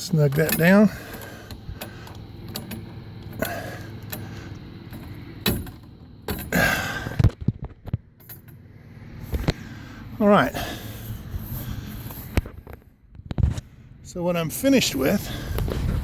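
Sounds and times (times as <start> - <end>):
metal poles clanking and scraping: 0.0 - 9.6.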